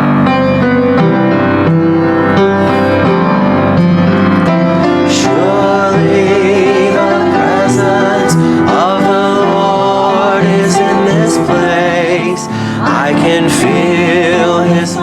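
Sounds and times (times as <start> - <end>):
piano accompaniment: 0.0 - 15.0
choir singing: 4.5 - 15.0.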